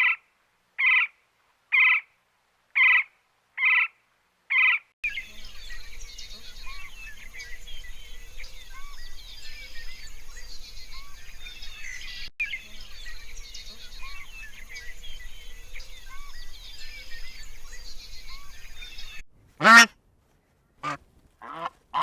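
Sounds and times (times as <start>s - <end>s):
birds chirping and whistling: 5.1s - 19.2s.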